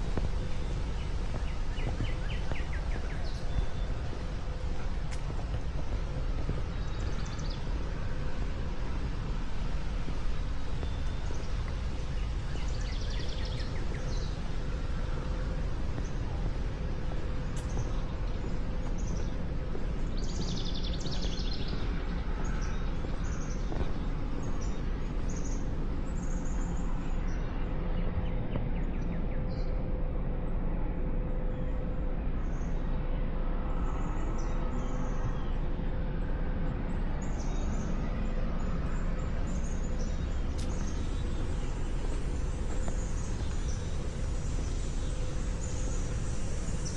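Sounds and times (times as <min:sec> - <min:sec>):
faint steady hum: 0:00.0 - 0:46.9
steady low rumble: 0:00.0 - 0:46.9
birds chirping: 0:37.2 - 0:46.9.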